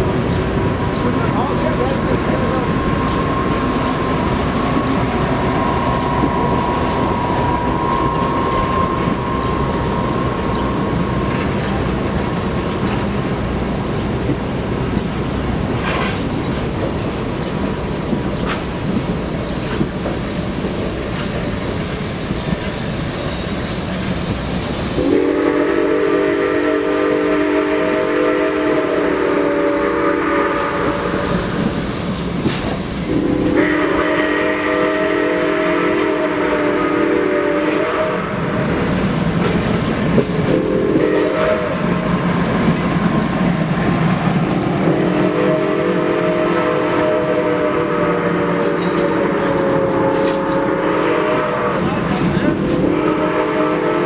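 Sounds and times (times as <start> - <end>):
steady steam hiss: 0.0 - 54.0
train running rumble: 0.0 - 54.0
steam locomotive chime whistle: 5.2 - 11.2, 21.7 - 31.8, 33.1 - 38.6, 40.5 - 41.8, 45.1 - 51.9, 52.7 - 54.0.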